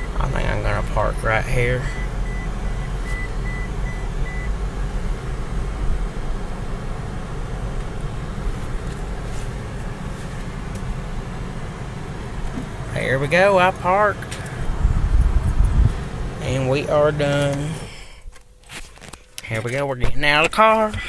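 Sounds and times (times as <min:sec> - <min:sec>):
car cabin rumble: 0:00.0 - 0:21.0.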